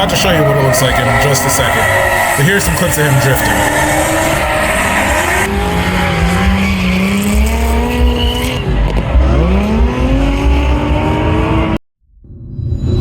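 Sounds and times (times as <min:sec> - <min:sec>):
tyre squeal: 0:00.0 - 0:10.1
car engine revving: 0:00.0 - 0:11.8.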